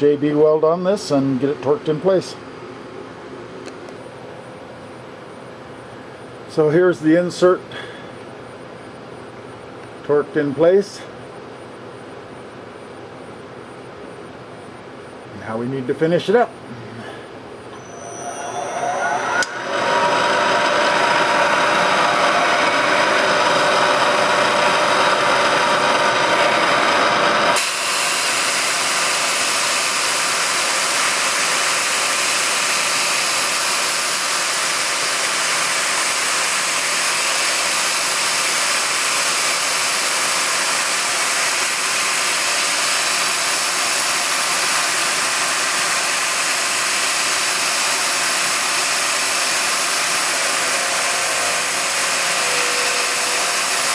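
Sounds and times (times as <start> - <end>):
power tool running: 17.7 - 53.9.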